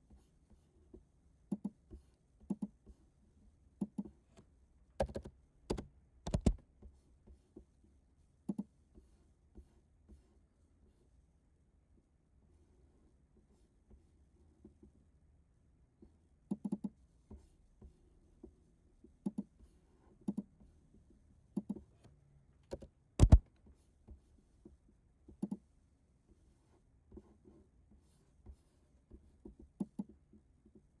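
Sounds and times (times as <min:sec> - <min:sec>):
small clicks and taps: 0:03.8 - 0:06.6, 0:21.6 - 0:23.6.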